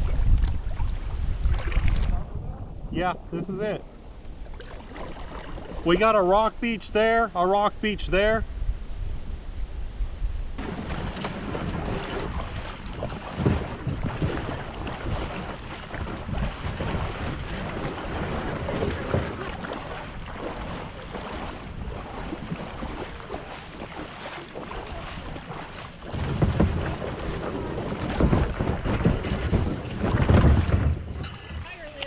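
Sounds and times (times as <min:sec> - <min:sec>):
river water washing: 0:00.0 - 0:07.7, 0:10.6 - 0:32.0
wind rumbling on microphone: 0:00.0 - 0:32.0.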